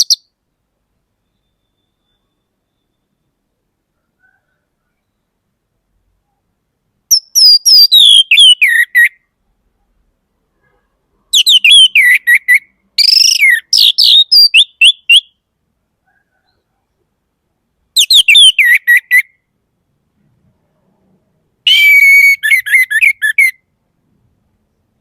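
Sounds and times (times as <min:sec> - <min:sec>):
thrush whistling song: 0:07.1 - 0:09.3, 0:11.3 - 0:15.4, 0:18.0 - 0:19.4, 0:21.7 - 0:23.7.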